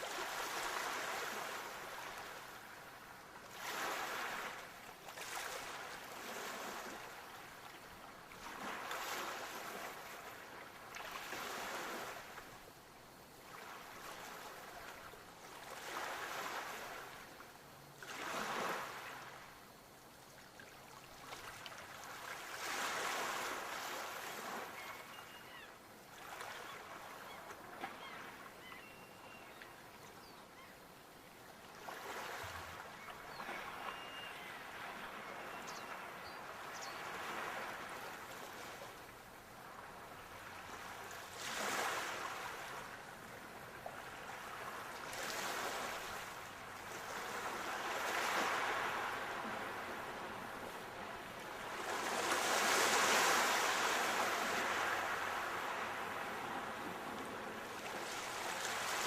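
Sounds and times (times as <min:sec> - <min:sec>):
sea waves breaking: 0:43.9 - 0:59.0.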